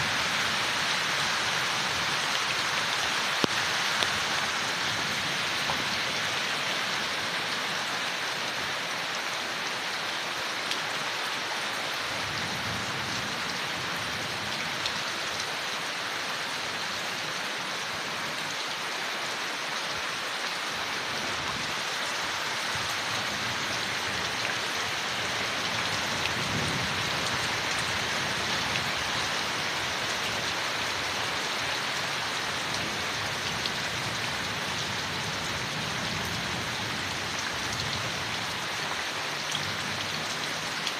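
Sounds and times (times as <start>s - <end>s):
rain falling on leaves: 0.0s - 40.9s
raindrops ticking: 3.3s - 4.2s.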